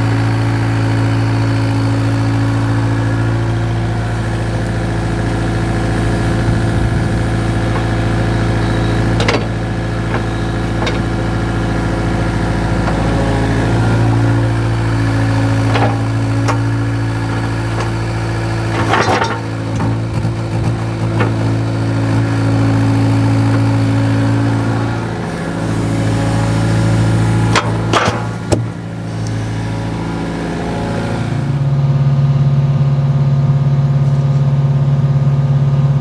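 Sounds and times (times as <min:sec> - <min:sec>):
engine idling: 0:00.0 - 0:36.0
sharp knocks: 0:27.5 - 0:29.3.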